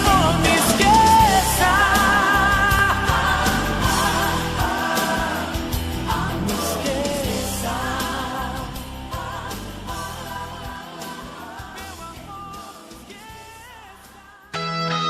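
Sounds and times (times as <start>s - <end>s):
guitar: 0.0s - 15.0s
person singing over band: 0.0s - 15.0s.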